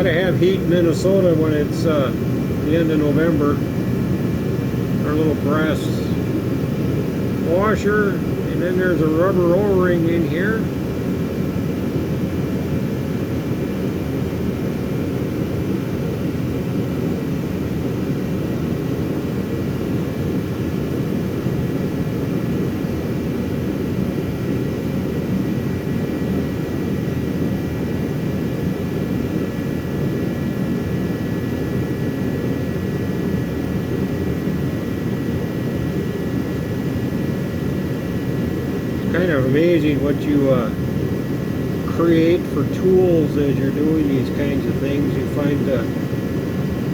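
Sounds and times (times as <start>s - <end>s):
heater blower rushing: 0.0s - 46.9s
faint high-pitched whine: 35.7s - 46.9s.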